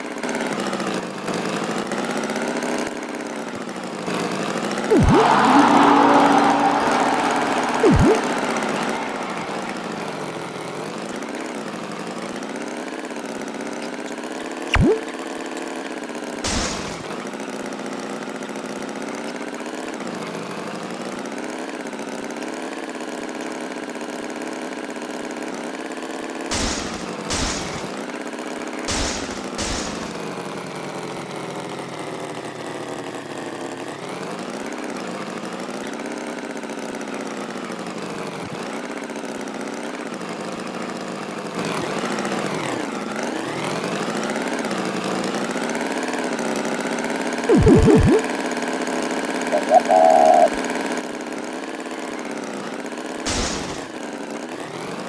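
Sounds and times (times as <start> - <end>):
short rising squeak: 4.9 - 9.8
cartoon tractor engine running: 4.9 - 10.2, 16.4 - 17.1, 26.5 - 28.0, 28.9 - 30.3, 47.5 - 48.2, 49.5 - 50.6, 53.3 - 53.9
short sharp noisy bursts: 16.5 - 17.1, 26.5 - 28.0, 28.9 - 30.3, 53.3 - 53.9.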